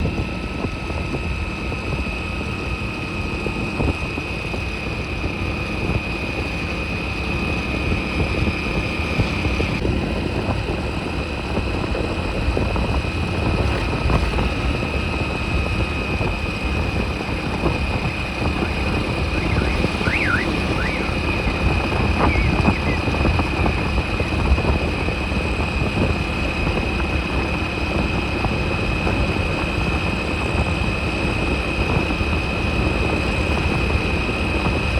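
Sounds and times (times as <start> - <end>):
motorbike engine rumble: 0.0 - 34.9
road and wind noise: 0.0 - 34.9
high whine: 12.0 - 25.6.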